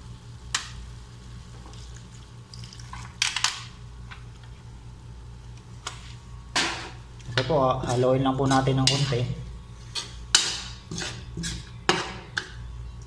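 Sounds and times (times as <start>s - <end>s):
food simmering in a pan: 0.0s - 3.9s
low steady hum: 0.0s - 13.0s
utensil scraping: 7.8s - 11.8s.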